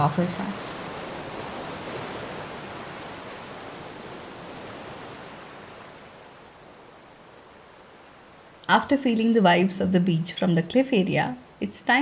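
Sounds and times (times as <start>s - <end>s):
sea surf: 0.0s - 8.7s.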